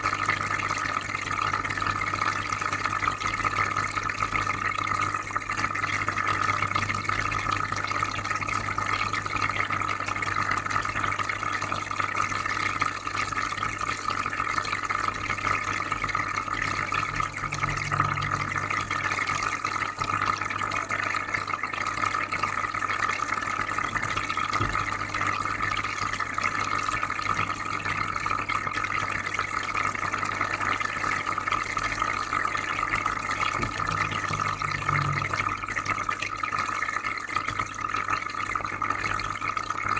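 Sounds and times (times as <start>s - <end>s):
water bubbling and trickling: 14.4s - 39.9s
low constant hum: 16.5s - 19.7s, 33.3s - 35.8s.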